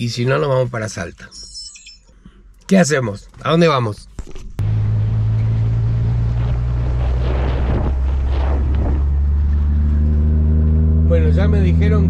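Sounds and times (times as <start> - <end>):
wind or road noise: 4.2 - 12.0
car engine running: 4.5 - 12.0.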